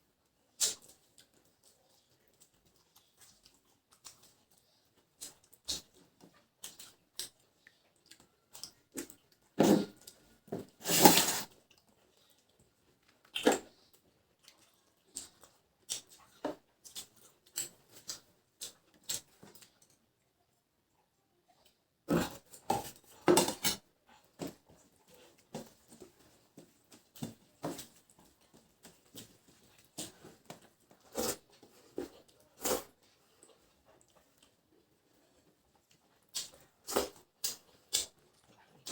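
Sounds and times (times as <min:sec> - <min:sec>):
chewing and lip smacking: 0:00.6 - 0:10.3, 0:11.5 - 0:20.0.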